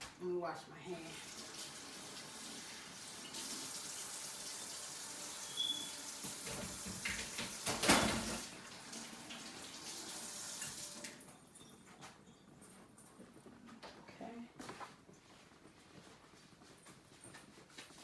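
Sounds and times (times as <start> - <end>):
tap water running: 0.8 - 11.7.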